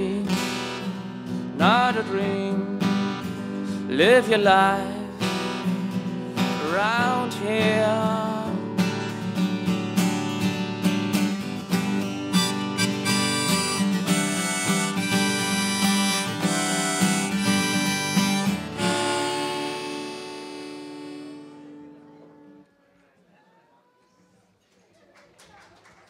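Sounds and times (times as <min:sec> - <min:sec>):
strummed acoustic guitar: 0:00.0 - 0:22.6
harmonica melody: 0:12.0 - 0:22.6.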